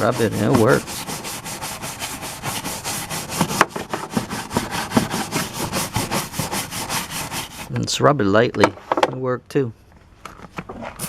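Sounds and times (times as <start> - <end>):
brush scrubbing greasy surface: 0.0 - 7.7.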